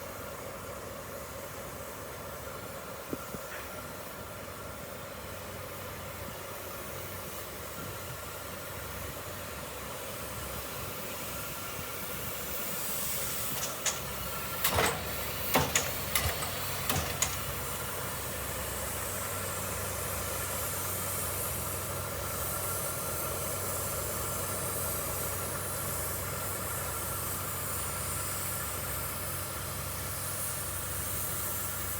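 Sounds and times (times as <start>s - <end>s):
steam hissing: 0.0s - 31.9s
diesel engine idling: 13.0s - 30.9s
sharp metallic knocks: 13.6s - 17.6s.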